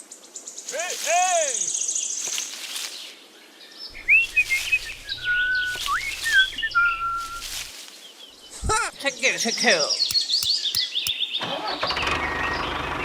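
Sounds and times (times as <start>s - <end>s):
steady low hum: 4.0s - 7.6s
bird-like whistled chirping: 4.0s - 7.7s, 10.0s - 11.3s.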